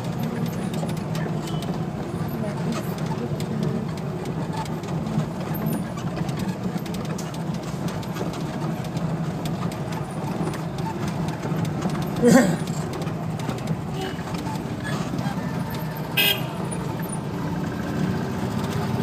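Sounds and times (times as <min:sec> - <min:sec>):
car engine idling: 0:00.0 - 0:19.0
street noise: 0:00.0 - 0:19.0.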